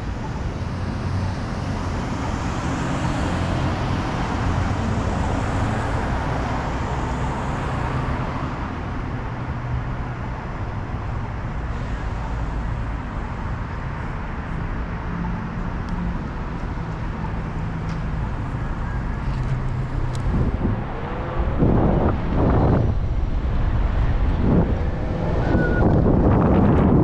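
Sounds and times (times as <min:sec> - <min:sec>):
road traffic rumble: 0:00.0 - 0:27.0
vehicle passing: 0:19.2 - 0:27.0.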